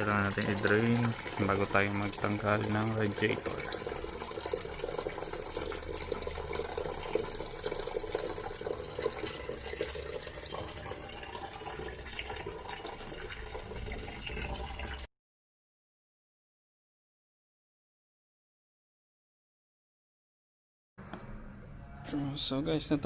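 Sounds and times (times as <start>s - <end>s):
coolant pouring into container: 0.0s - 15.1s.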